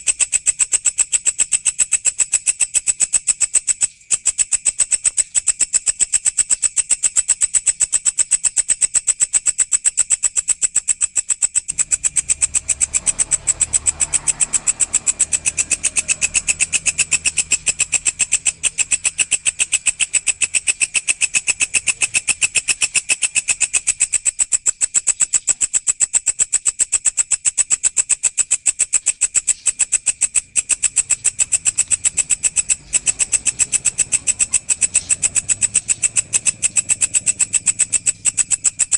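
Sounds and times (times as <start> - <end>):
grasshopper shrill buzzing: 10.9 - 38.9.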